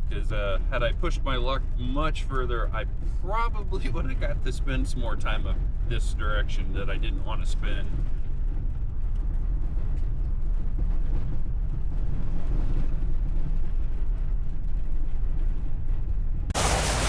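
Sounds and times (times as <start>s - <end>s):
engine and tyres rumbling on snow: 0.0s - 17.0s
loud even hiss: 16.5s - 17.0s.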